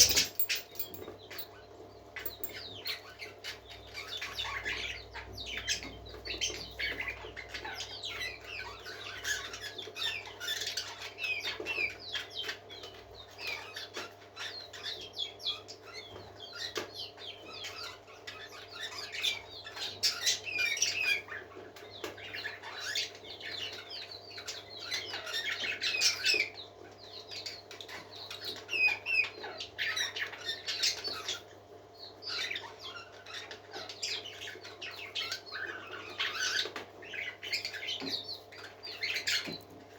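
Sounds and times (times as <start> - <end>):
parakeets chattering and warbling: 32.2 - 39.6.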